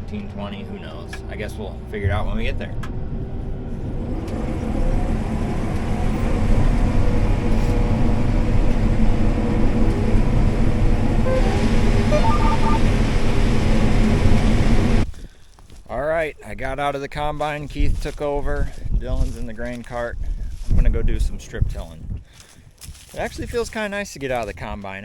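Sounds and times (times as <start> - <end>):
combine harvester rumbling: 0.0 - 15.1.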